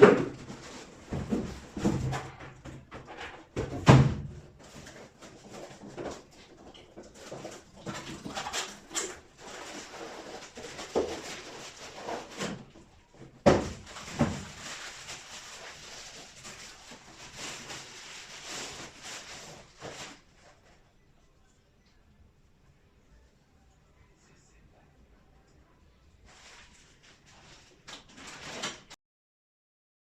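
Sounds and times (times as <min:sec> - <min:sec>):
rustling: 0:04.6 - 0:21.0, 0:26.2 - 0:29.0.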